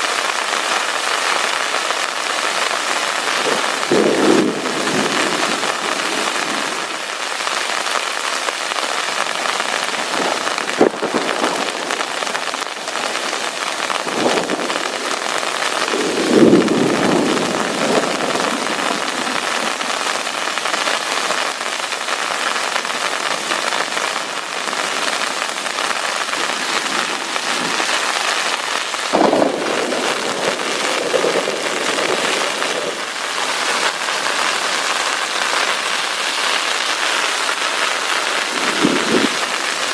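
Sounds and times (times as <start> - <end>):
heavy rain falling: 0.0 - 39.9
low rumbles of thunder: 3.4 - 6.9, 10.2 - 11.9, 14.0 - 15.0, 15.9 - 19.5, 29.1 - 33.0.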